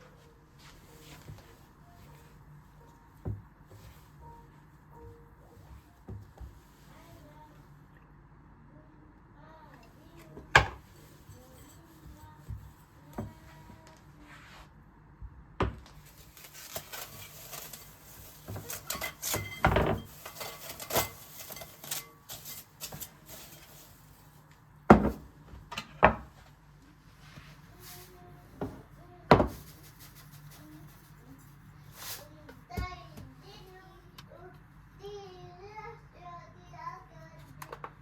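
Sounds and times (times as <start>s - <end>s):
kitchen items clattering: 10.4s - 13.6s, 15.9s - 26.4s.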